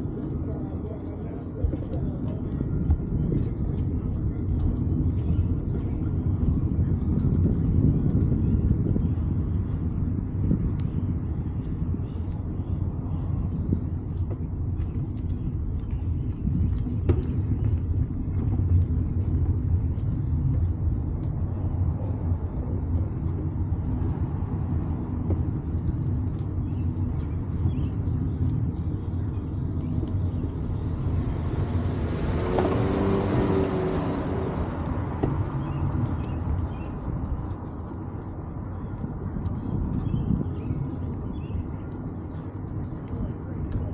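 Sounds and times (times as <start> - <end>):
wind buffeting microphone: 0.0 - 43.9
car passing: 29.9 - 36.8.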